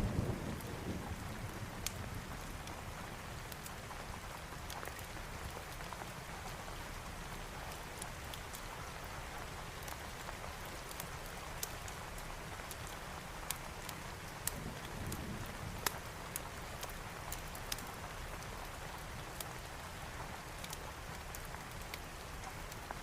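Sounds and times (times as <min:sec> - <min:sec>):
steady rainfall: 0:00.0 - 0:23.0
wood fire crackling: 0:00.0 - 0:23.0.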